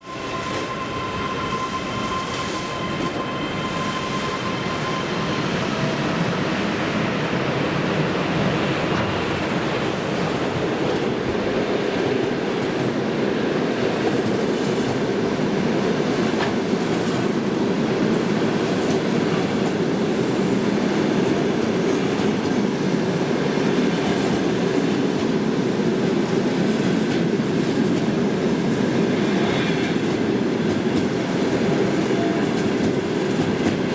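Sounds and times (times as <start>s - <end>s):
train wheels rumbling on rails: 0.0s - 33.9s
clickety-clack over rail joints: 8.4s - 20.0s, 20.6s - 33.9s.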